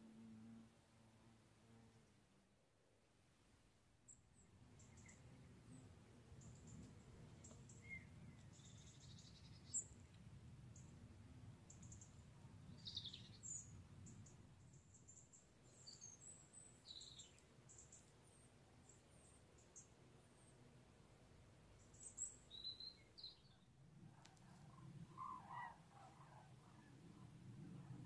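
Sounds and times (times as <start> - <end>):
small birds chirping: 4.1 - 20.7, 21.7 - 28.0
low steady rumble: 23.6 - 28.0.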